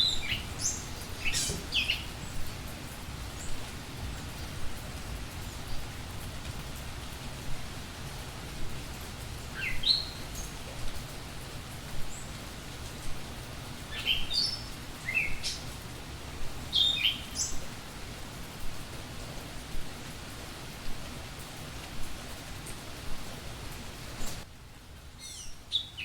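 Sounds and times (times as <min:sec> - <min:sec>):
small birds chirping: 0:00.0 - 0:06.0, 0:09.2 - 0:11.1, 0:12.0 - 0:18.1, 0:25.2 - 0:26.0
low background hiss: 0:00.0 - 0:26.0.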